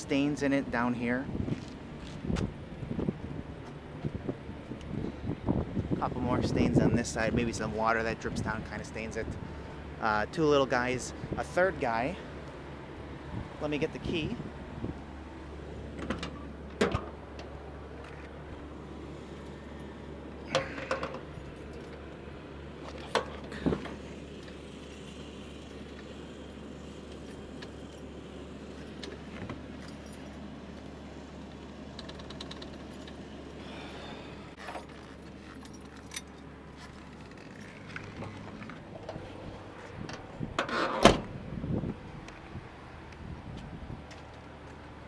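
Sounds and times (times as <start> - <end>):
car keys jangling: 24.4 - 30.7, 34.6 - 38.6
trunk latch releasing: 40.1 - 41.4.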